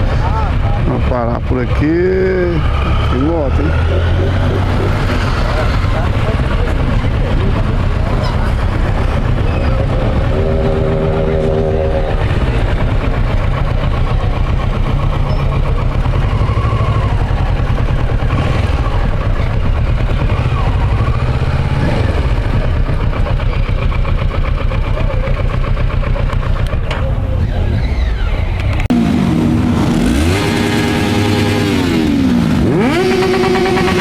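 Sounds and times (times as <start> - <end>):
motorcycle engines revving: 0.0 - 34.0
motorcycle engines rumbling: 0.0 - 34.0
brief held tone: 9.5 - 12.9.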